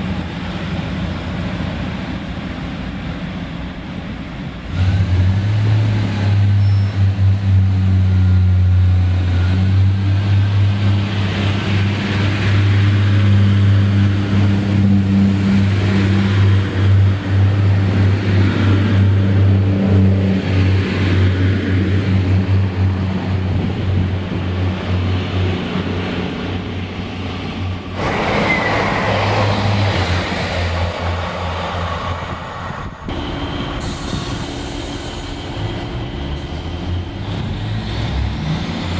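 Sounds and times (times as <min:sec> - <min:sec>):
train engine humming: 0:00.0 - 0:38.9.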